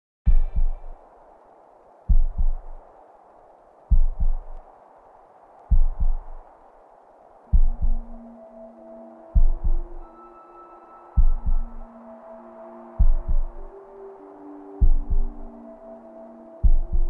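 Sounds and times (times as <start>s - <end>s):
heartbeat thumps: 0.3s - 1.0s, 2.1s - 2.8s, 3.9s - 4.6s, 5.7s - 6.4s, 7.5s - 8.2s, 9.4s - 10.0s, 11.2s - 11.9s, 13.0s - 13.7s, 14.8s - 15.5s, 16.6s - 17.0s
faint steady hiss: 0.3s - 17.0s.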